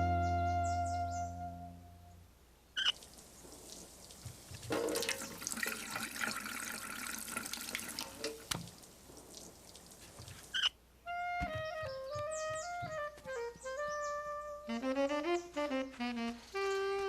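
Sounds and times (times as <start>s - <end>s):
cartoon water splashing onto soil: 2.9s - 10.6s.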